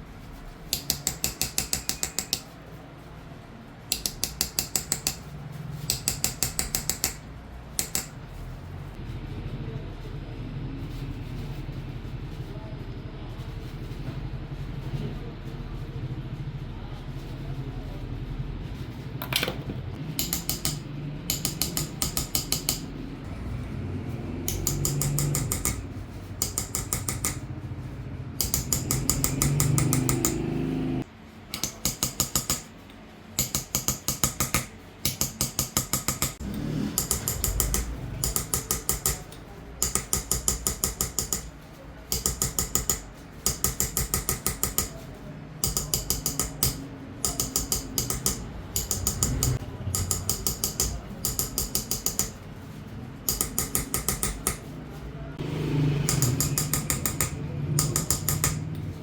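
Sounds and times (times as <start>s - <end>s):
hammer tapping chisel on metal: 0.7s - 2.5s, 3.9s - 8.2s, 19.2s - 23.0s, 24.5s - 27.5s, 28.4s - 30.7s, 31.5s - 32.8s, 33.4s - 41.5s, 42.1s - 52.4s, 53.2s - 54.7s, 56.0s - 59.0s.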